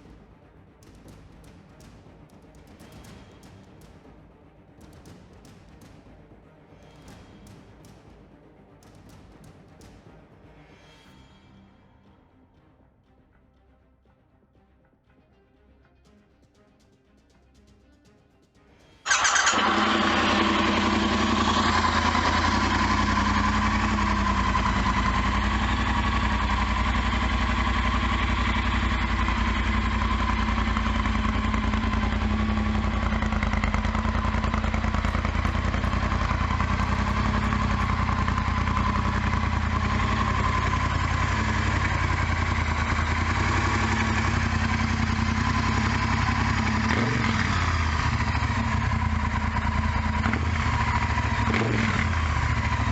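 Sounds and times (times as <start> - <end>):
motorcycle engine idling: 19.1 - 52.9.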